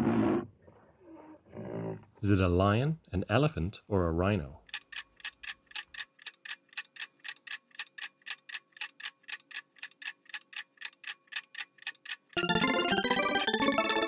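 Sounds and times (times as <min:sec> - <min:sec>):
clock ticking: 0:04.6 - 0:14.0.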